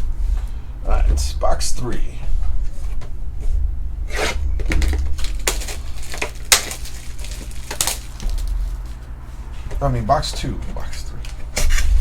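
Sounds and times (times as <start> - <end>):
packaging and cardboard scraping: 4.1 - 9.2.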